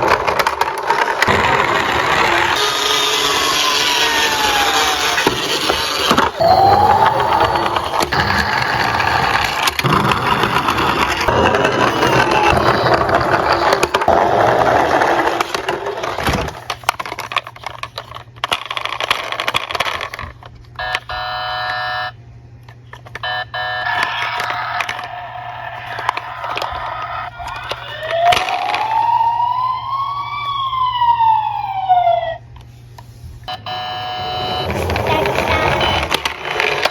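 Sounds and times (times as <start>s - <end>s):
toy cars rolling and rattling: 0.0s - 21.0s, 23.9s - 29.3s, 34.0s - 36.9s
electronic toy siren wails: 1.3s - 9.7s, 11.7s - 13.9s, 20.8s - 22.1s, 23.2s - 32.4s, 33.5s - 36.2s.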